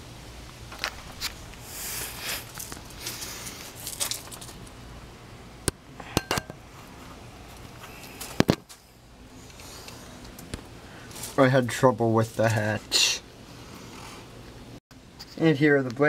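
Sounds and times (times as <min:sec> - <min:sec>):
steady low hum: 0:00.0 - 0:16.0
rustling: 0:00.7 - 0:04.8, 0:06.7 - 0:14.6.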